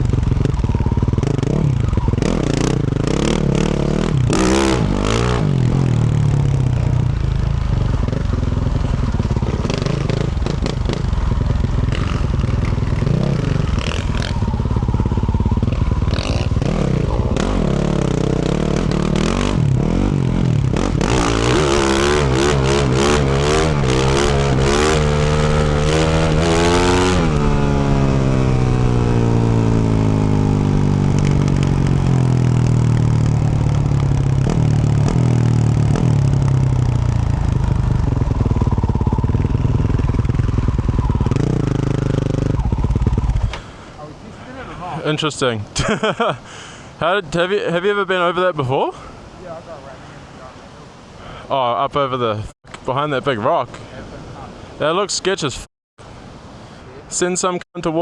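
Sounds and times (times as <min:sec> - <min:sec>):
motorcycle engine revving: 0:00.0 - 0:44.7.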